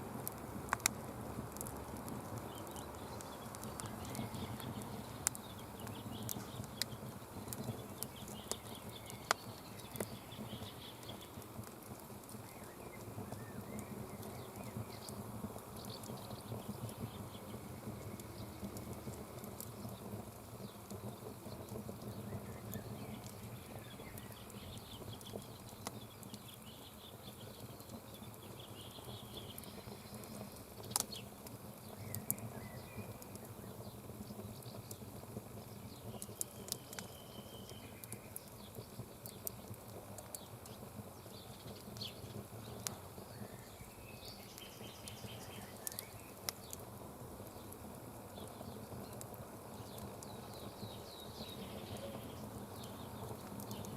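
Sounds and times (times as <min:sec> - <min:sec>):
campfire crackling: 0:00.0 - 0:53.9
fire sharp pops: 0:00.0 - 0:53.9
faint bird chirps: 0:35.8 - 0:39.0, 0:41.2 - 0:46.7, 0:49.9 - 0:53.9.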